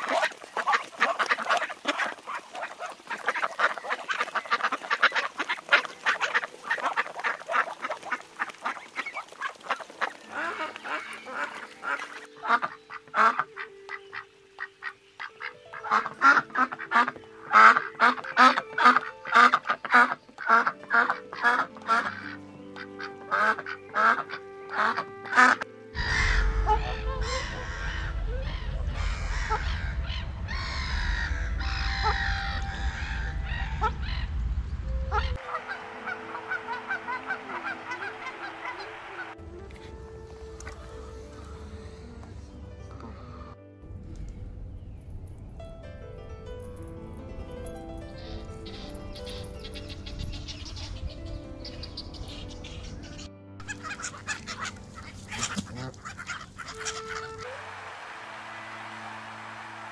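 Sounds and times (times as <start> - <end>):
duck quacks: 0.0 - 14.2, 15.2 - 28.6, 53.6 - 57.5
goose honks: 0.0 - 14.3, 15.2 - 34.0, 35.1 - 39.4, 53.6 - 57.5
low rumble: 26.0 - 35.4, 40.9 - 48.6.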